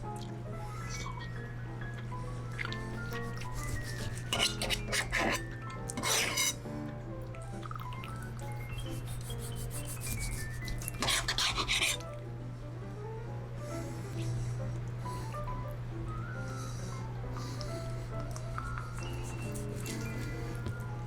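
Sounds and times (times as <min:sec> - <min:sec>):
soft background music: 0:00.0 - 0:21.0
knife slicing chicken: 0:03.0 - 0:06.6, 0:09.0 - 0:12.0.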